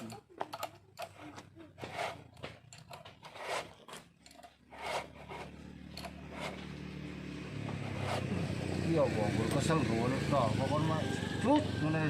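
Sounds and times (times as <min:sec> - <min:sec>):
scraping and rubbing strokes: 0:01.0 - 0:06.7, 0:07.7 - 0:08.4
low engine hum: 0:05.1 - 0:12.0.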